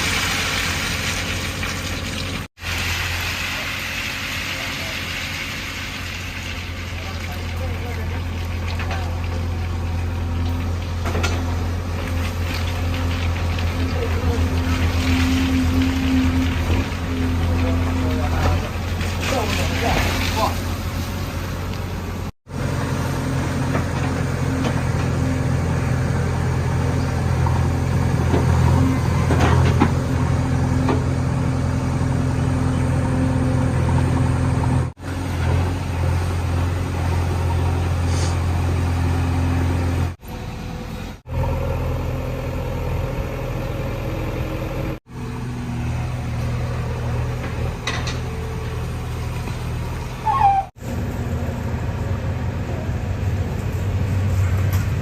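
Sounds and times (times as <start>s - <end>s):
diesel engine running: 0.0s - 55.0s
short squeak: 50.2s - 50.7s.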